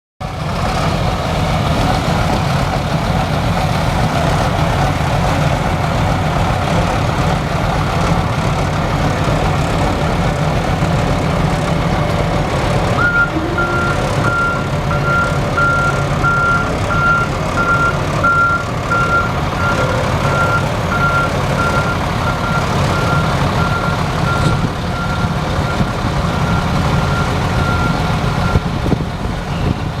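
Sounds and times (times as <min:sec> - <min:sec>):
truck engine running: 0:00.2 - 0:30.0
back-up alarm beeps: 0:13.0 - 0:28.6.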